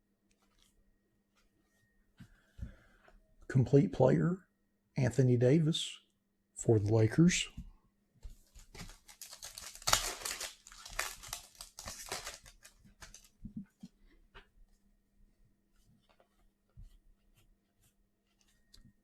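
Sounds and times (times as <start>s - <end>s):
wrapper crinkling and tearing: 8.6s - 13.4s.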